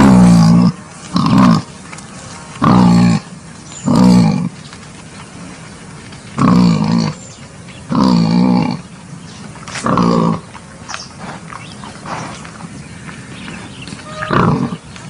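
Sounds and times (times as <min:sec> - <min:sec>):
wild boar calls: 0:02.6 - 0:04.5, 0:09.7 - 0:10.5, 0:14.0 - 0:14.9.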